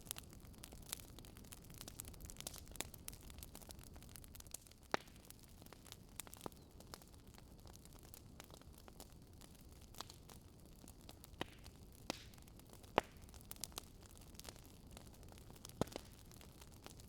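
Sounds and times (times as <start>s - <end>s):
wood fire crackling: 0.0s - 17.0s
sharp fire pops: 1.7s - 3.7s, 4.5s - 5.2s, 11.3s - 14.5s, 15.5s - 16.1s.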